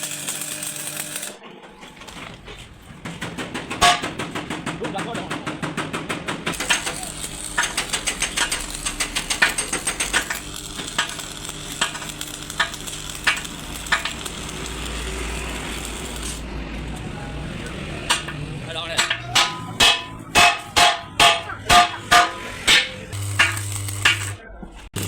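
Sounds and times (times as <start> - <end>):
hand tools clicking on metal: 6.5 - 16.4, 17.0 - 24.4.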